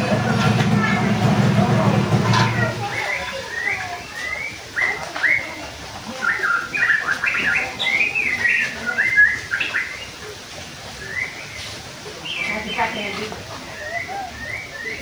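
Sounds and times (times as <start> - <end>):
bird chirping: 6.1 - 10.2, 11.0 - 15.0.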